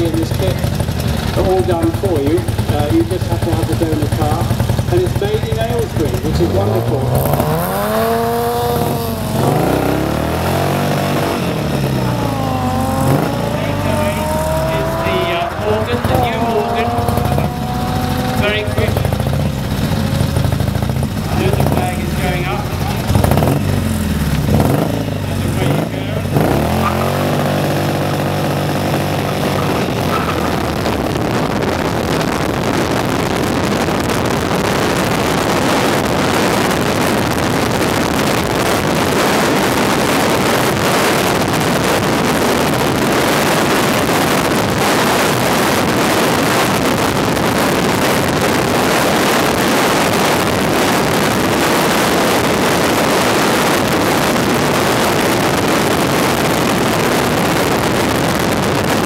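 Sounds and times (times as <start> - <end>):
engine pulling hard: 0.0 - 59.0
wind rush on microphone: 28.5 - 59.0.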